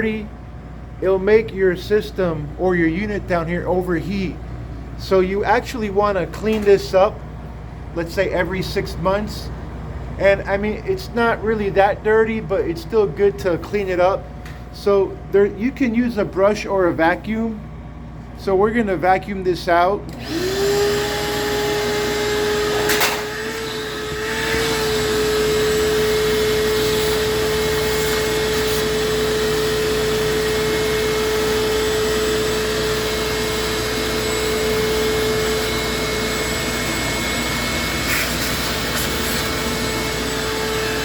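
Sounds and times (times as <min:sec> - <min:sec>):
vacuum cleaner whine: 0:20.1 - 0:41.0.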